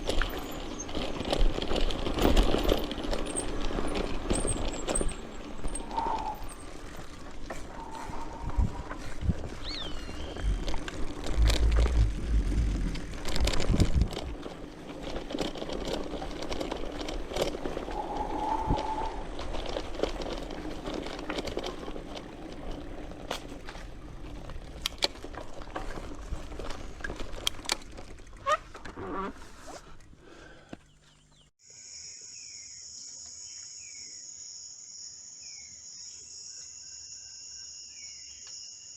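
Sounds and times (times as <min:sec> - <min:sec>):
bicycle tyre noise: 0:00.0 - 0:31.0
bike clicks and rattles: 0:00.0 - 0:31.4
low rumble on microphone: 0:07.5 - 0:14.4, 0:17.8 - 0:19.9.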